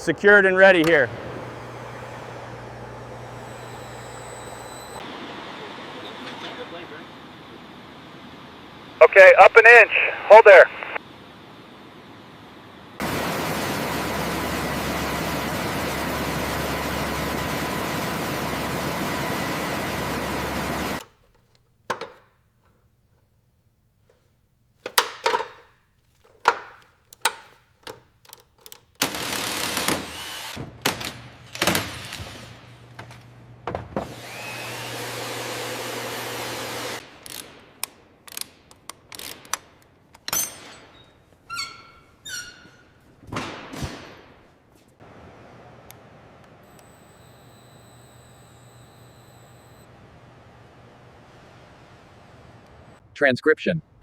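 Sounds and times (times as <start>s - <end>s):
loud steady mechanical noise: 0.0s - 22.2s
power tool whirring: 0.8s - 5.0s, 15.9s - 22.2s, 24.8s - 30.6s, 34.1s - 37.0s, 46.6s - 49.8s
short squeaks: 20.9s - 22.8s, 24.8s - 29.1s
tools knocking on metal: 21.9s - 22.2s, 24.9s - 25.7s, 26.3s - 28.8s.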